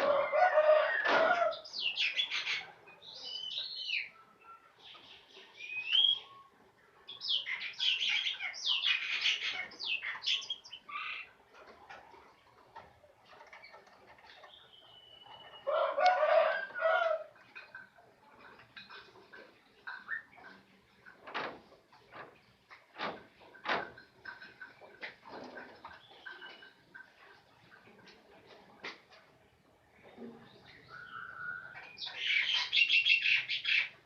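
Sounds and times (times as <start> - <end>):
birds harsh chattering calls: 1.4 - 4.1, 7.1 - 11.4, 30.5 - 34.0
whistled bird notes: 5.6 - 6.5, 14.5 - 15.7.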